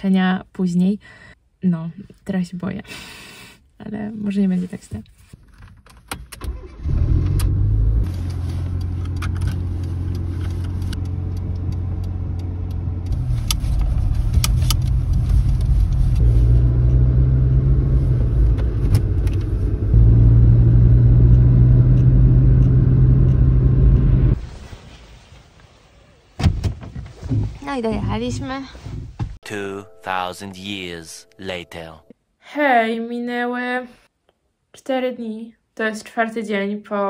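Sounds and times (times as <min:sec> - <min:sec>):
car engine and road noise: 0:05.4 - 0:29.4.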